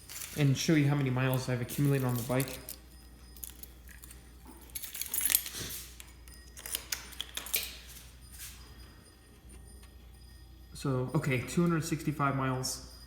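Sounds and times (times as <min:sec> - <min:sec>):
keys jingling: 0:00.0 - 0:10.0.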